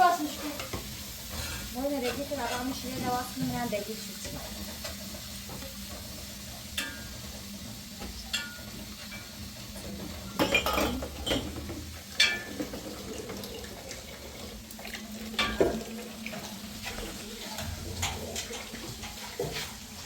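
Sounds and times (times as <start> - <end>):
metal cookware clinking: 0.0 - 13.2, 15.3 - 19.7.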